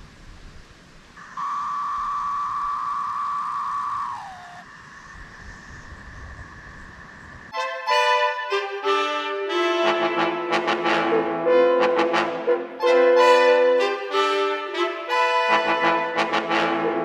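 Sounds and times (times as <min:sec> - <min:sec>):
long two-note horn toot: 0:01.2 - 0:04.6, 0:07.6 - 0:17.0
brass music: 0:07.6 - 0:17.0.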